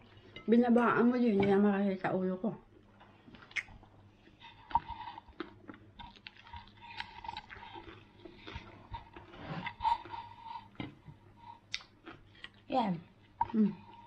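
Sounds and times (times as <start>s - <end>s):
person crunching salad: 4.6s - 10.1s.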